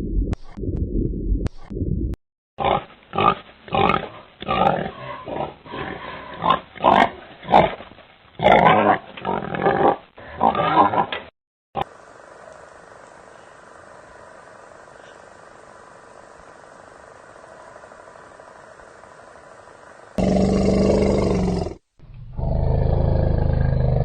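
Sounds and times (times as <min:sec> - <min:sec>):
pig grunting: 0:02.6 - 0:07.8, 0:08.4 - 0:11.2, 0:20.2 - 0:24.0
faint steady hiss: 0:11.8 - 0:22.3.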